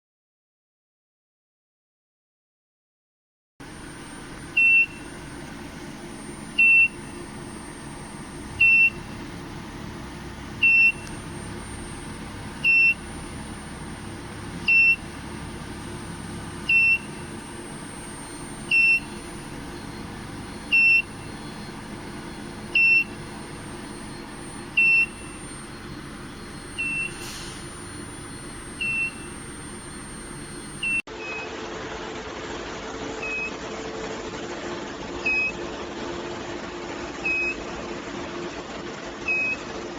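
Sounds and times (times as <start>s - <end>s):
thin high whine: 3.6s - 31.0s
machine hum: 3.6s - 39.1s
high electronic beep: 3.8s - 9.8s, 10.6s - 31.4s.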